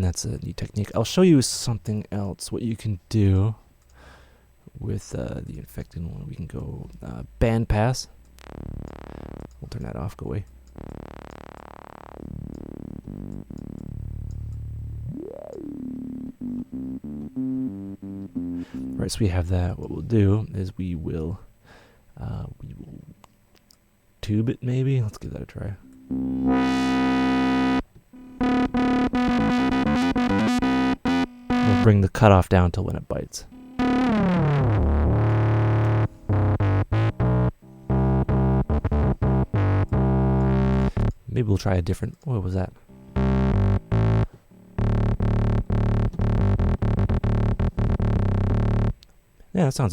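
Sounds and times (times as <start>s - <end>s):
synthesizer bass notes: 6.8s - 19.4s, 25.9s - 32.1s, 33.5s - 41.2s, 42.9s - 49.0s.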